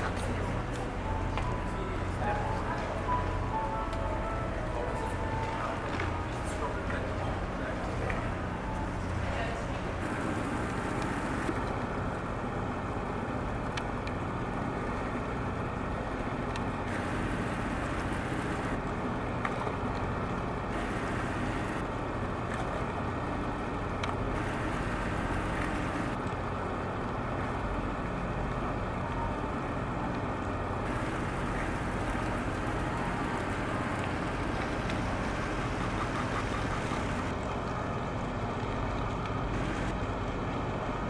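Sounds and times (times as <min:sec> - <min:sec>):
faint steady tones: 0:00.0 - 0:11.6, 0:20.7 - 0:21.8, 0:24.3 - 0:26.2, 0:30.8 - 0:37.4, 0:39.5 - 0:40.0
ferry engines rumbling: 0:00.0 - 0:13.6, 0:14.2 - 0:41.0.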